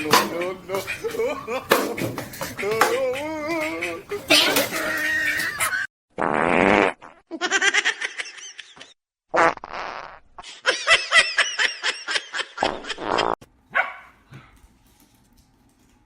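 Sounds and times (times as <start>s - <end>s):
person laughing: 0.3s - 5.9s, 10.4s - 13.4s
buzzy fart-like blasts: 6.2s - 7.2s, 9.3s - 10.4s, 12.7s - 13.4s.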